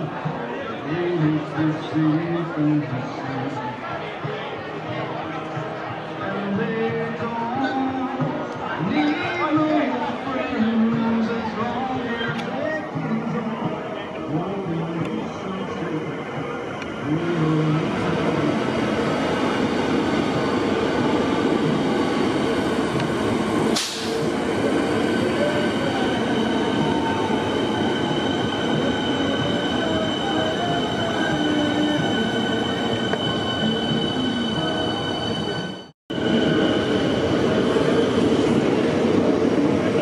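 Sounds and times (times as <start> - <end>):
train wheels rumbling on rail: 0.0 - 40.0
high-pitched train whine: 9.0 - 40.0.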